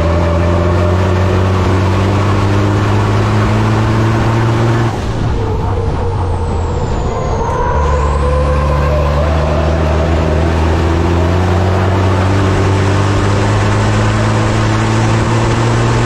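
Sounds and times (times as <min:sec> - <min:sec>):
diesel truck engine pulling hard: 0:00.0 - 0:16.0
faint falling whine: 0:02.8 - 0:14.3.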